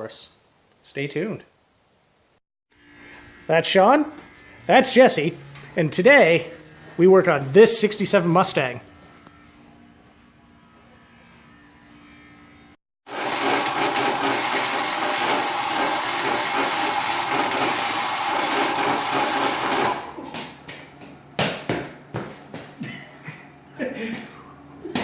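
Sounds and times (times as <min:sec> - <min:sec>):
metalworking power tool whining: 0:02.8 - 0:20.2.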